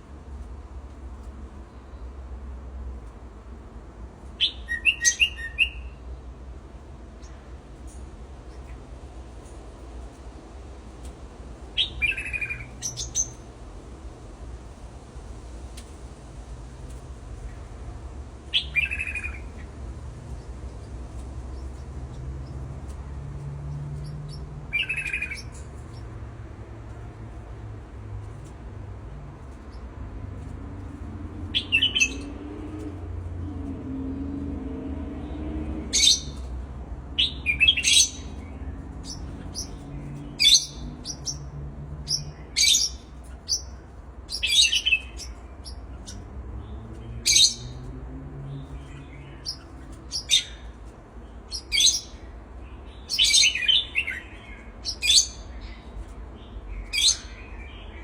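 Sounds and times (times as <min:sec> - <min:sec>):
birds chirping: 0:04.3 - 0:06.0, 0:11.7 - 0:13.5, 0:18.4 - 0:58.0.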